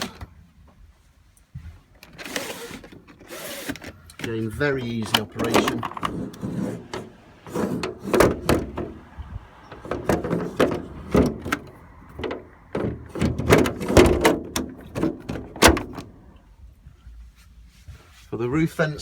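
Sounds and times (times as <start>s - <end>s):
plastic fittings clicking and rattling: 2.0s - 8.9s.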